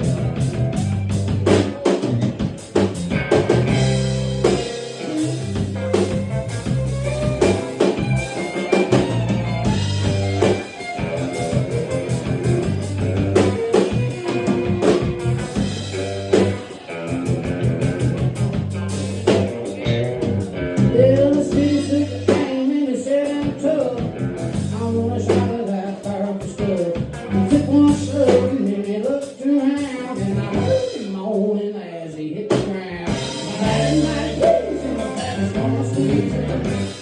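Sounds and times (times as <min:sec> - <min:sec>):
country band playing: 0:00.0 - 0:37.0
person singing: 0:20.8 - 0:37.0.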